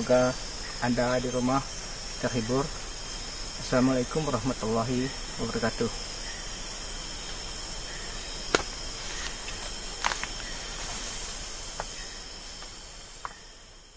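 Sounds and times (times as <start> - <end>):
high-pitched hiss: 0.0 - 13.9.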